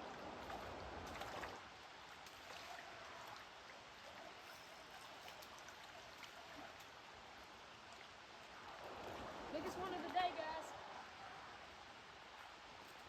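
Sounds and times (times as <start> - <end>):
creek water flowing: 0.0 - 13.0.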